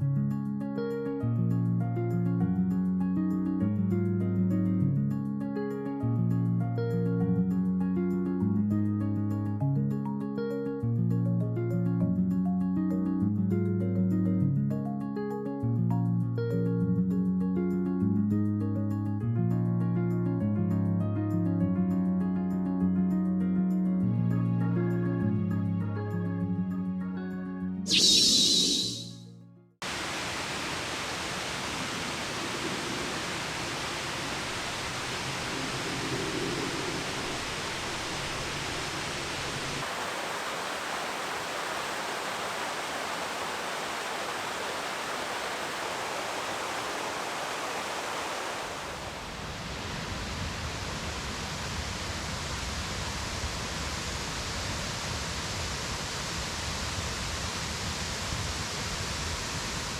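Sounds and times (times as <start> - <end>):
outdoor rushing hiss: 29.8 - 59.9.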